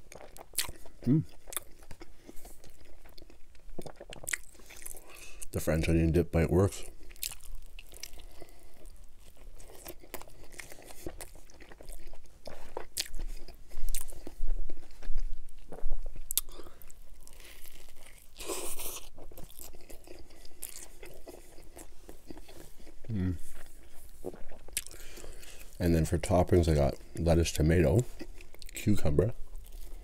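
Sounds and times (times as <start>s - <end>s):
chewing crunchy food: 0.0s - 30.0s.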